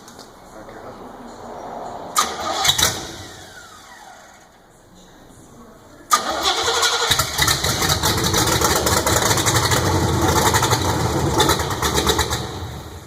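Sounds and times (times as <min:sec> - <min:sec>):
starter cranking engine: 0:06.1 - 0:12.6
car engine running: 0:07.1 - 0:13.0.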